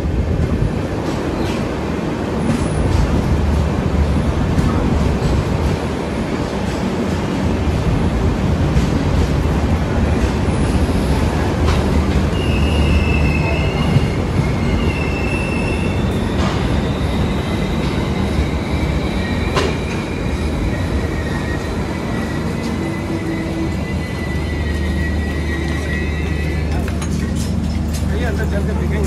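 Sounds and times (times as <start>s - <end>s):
train rumble: 0.0s - 29.0s
high wheel squeals: 12.2s - 26.9s.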